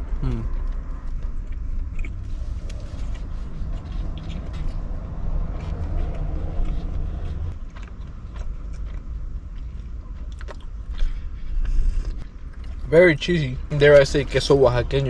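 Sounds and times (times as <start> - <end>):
low rumble: 0.0 - 15.0
chewing food: 0.1 - 12.9.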